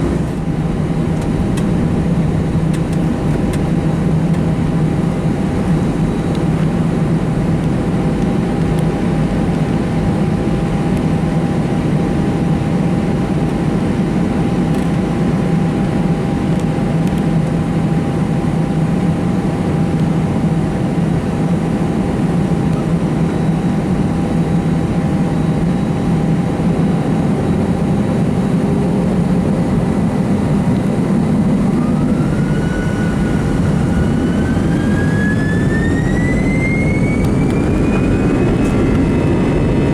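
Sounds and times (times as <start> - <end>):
jet engines cabin noise: 0.0 - 39.9
jet engines spooling up whine: 0.0 - 39.9.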